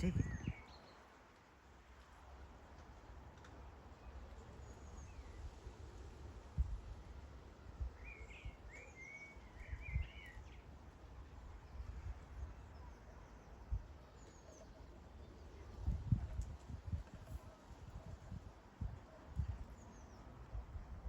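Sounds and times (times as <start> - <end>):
small songbird chirping: 0.0 - 1.1, 7.8 - 10.8.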